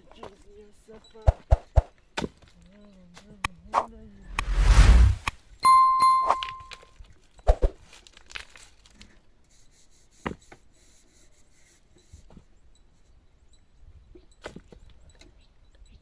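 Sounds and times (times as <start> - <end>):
bell-like ding: 5.6 - 6.7.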